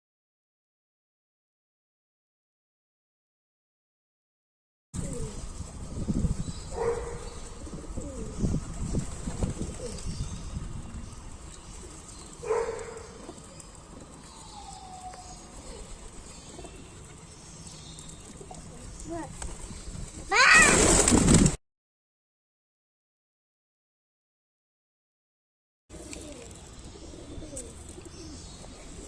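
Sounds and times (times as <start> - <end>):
pigeons cooing: 5.0 - 10.3, 10.9 - 18.9, 25.9 - 29.0.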